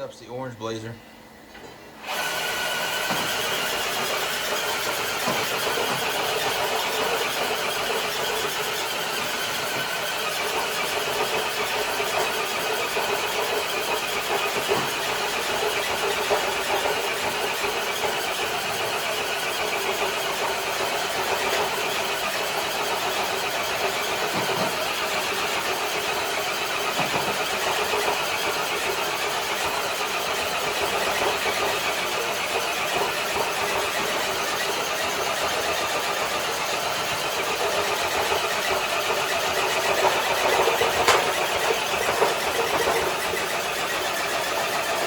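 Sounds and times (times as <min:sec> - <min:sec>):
electric motor and gears whining: 0:02.0 - 0:45.0.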